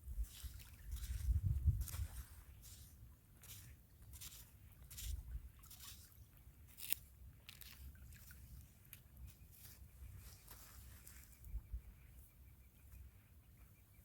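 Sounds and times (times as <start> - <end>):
crunching on wet gravel: 0.2 - 8.4.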